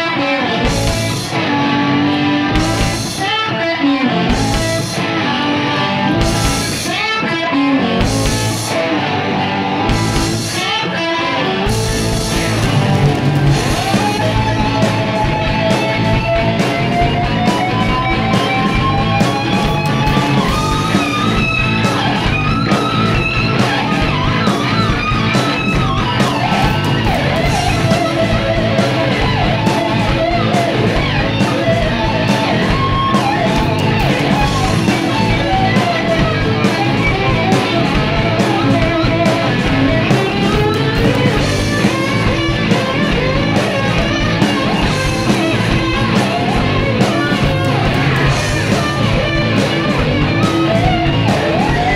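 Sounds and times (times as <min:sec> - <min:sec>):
bass guitar: 0:00.0 - 0:51.9
sliding lead guitar line: 0:00.0 - 0:51.9
strummed guitar: 0:00.0 - 0:51.9
drum hits: 0:11.7 - 0:51.9.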